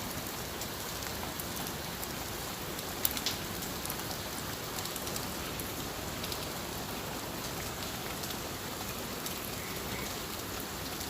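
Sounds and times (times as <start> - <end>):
heavy rain pattering: 0.0 - 11.0
raindrops ticking: 0.1 - 11.0.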